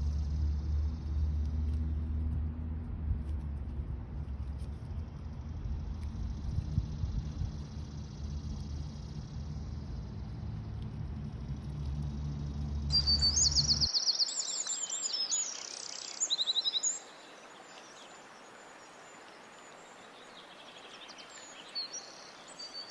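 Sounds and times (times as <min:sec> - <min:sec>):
low steady rumble: 0:00.0 - 0:13.9
songbird trilling: 0:12.9 - 0:22.9.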